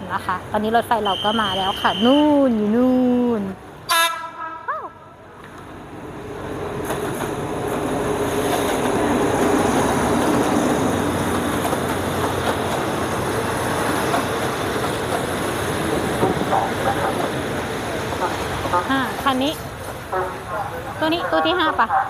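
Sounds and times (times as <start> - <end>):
diesel locomotive engine: 0.0 - 22.0
train wheels on rails: 5.4 - 22.0.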